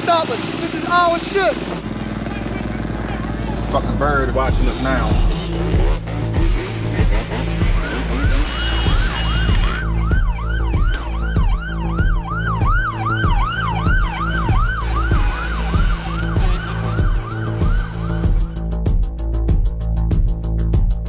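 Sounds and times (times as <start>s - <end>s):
music with heavy beat: 0.1s - 21.0s
siren yelping: 7.8s - 18.7s.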